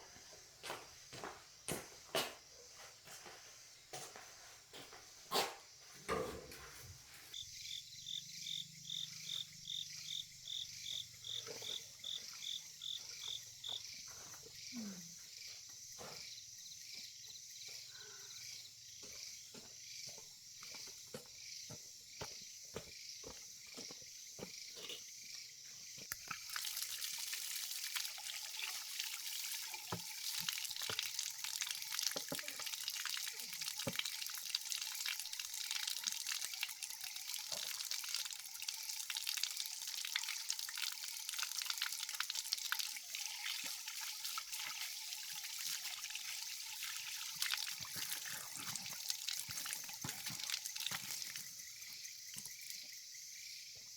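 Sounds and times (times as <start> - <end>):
insects chirping: 0.0 - 53.9
water trickling and dripping: 25.9 - 53.5.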